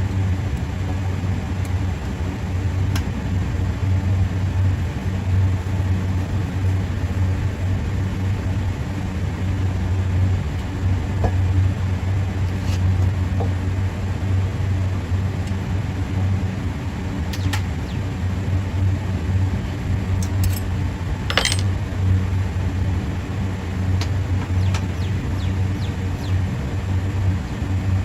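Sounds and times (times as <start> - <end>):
low machinery hum: 0.0 - 28.0
metal parts clicking: 20.3 - 20.7, 21.3 - 21.7.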